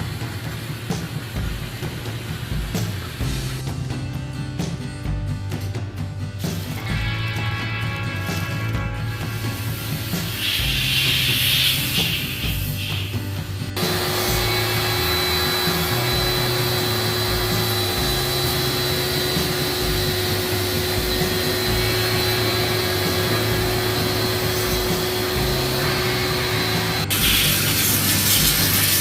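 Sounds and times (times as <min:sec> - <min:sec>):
cleaning machine motor running: 0:06.4 - 0:29.0.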